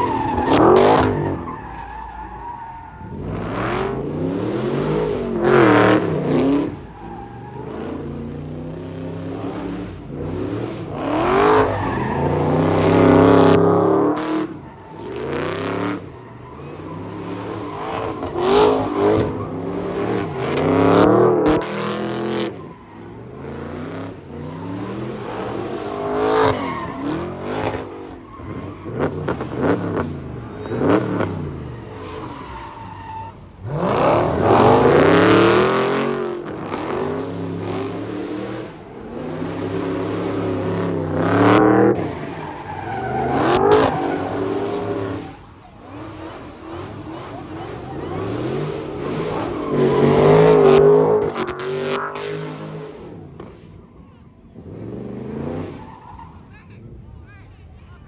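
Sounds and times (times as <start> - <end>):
car engine revving hard: 3.1 - 6.8, 7.6 - 22.6, 33.6 - 45.2, 45.9 - 53.2.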